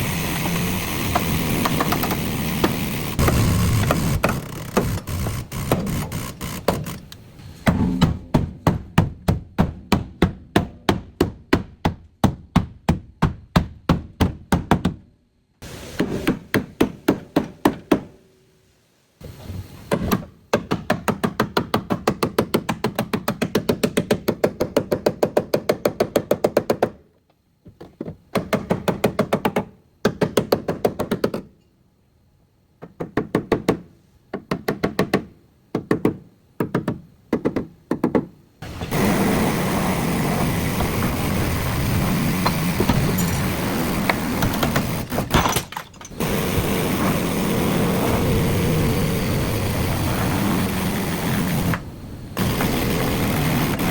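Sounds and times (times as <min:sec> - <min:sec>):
repeated hammering: 0:00.0 - 0:15.0, 0:32.8 - 0:53.9.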